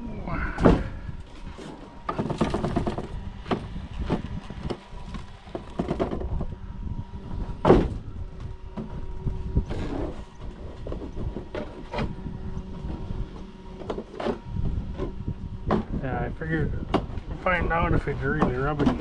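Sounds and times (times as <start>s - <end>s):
rc truck knocks and clatters: 2.0s - 4.8s, 18.3s - 19.0s
loud thump: 7.6s - 8.0s.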